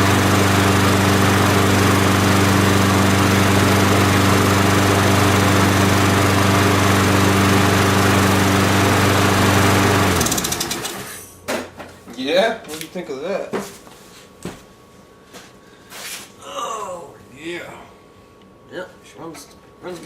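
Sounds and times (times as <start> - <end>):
lawn mower engine running: 0.0 - 11.2.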